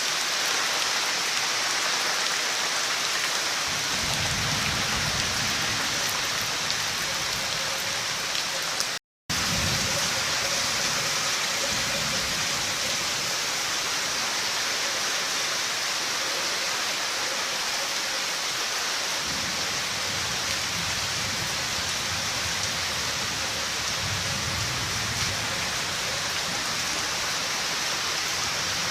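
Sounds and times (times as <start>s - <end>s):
heavy rain falling: 0.0s - 28.9s.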